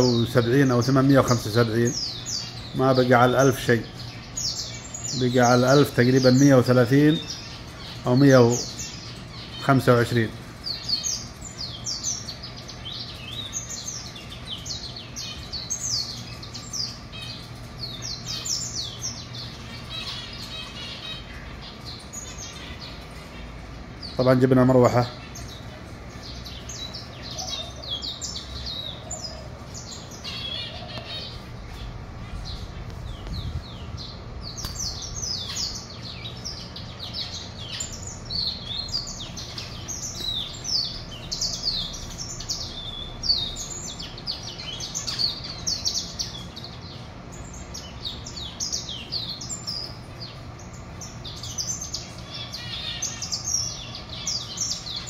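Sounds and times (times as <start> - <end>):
electric fan humming: 0.0 - 55.0
small birds chirping and singing: 0.0 - 55.0.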